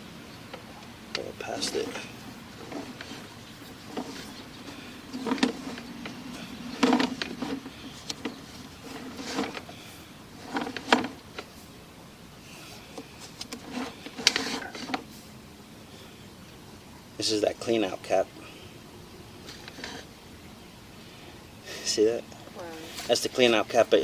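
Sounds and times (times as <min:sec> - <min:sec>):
cable knocking and scraping in pipe: 0:02.6 - 0:09.7, 0:10.4 - 0:11.5.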